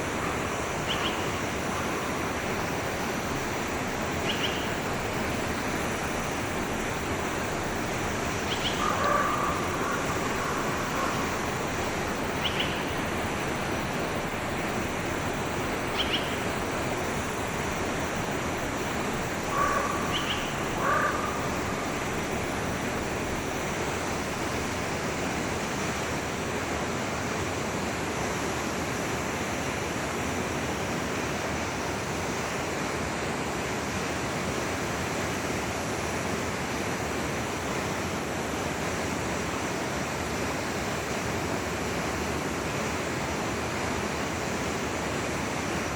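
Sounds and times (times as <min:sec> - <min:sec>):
forest stream flowing: 0:00.0 - 0:45.9
short bird calls: 0:19.5 - 0:21.8.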